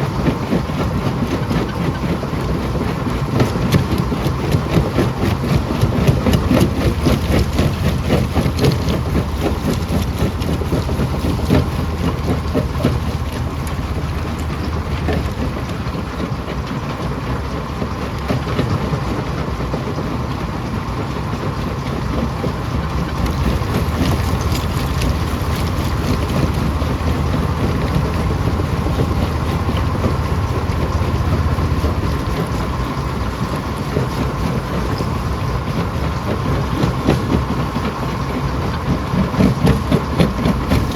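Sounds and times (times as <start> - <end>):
rocks rattling and knocking: 0.2 - 16.9, 22.2 - 40.9
stone crusher drone: 39.6 - 40.9.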